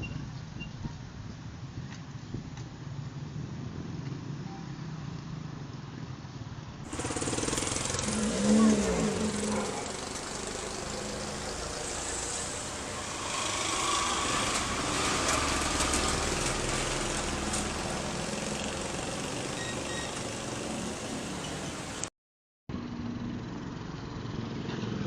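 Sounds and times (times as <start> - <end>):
steady rushing noise: 6.9 - 22.1
vehicle engine running: 6.9 - 22.1.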